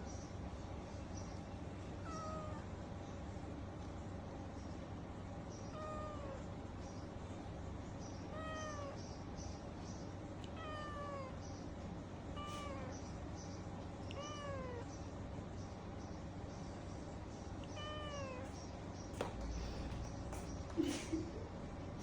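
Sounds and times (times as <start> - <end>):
cat meowing: 2.0 - 2.6, 5.7 - 6.4, 8.3 - 9.0, 10.4 - 11.4, 12.3 - 12.9, 14.1 - 14.9, 17.6 - 18.5.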